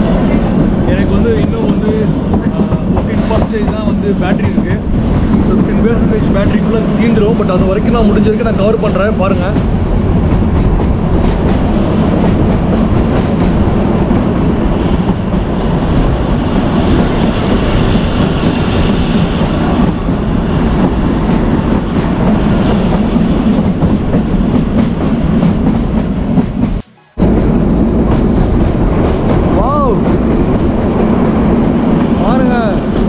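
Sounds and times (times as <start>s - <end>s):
train rumble: 0.0s - 33.0s.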